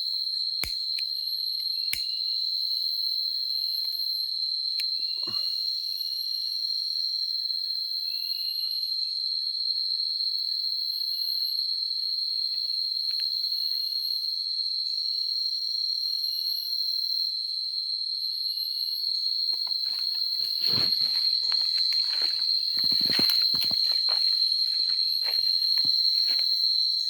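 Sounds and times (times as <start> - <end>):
high-pitched insect chorus: 0.0 - 27.0
knocks and rustles: 19.9 - 24.1.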